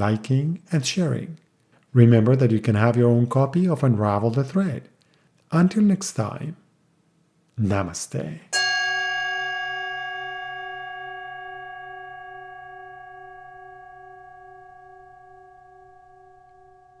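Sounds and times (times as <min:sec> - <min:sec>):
singing bowl ringing: 0:08.5 - 0:17.0.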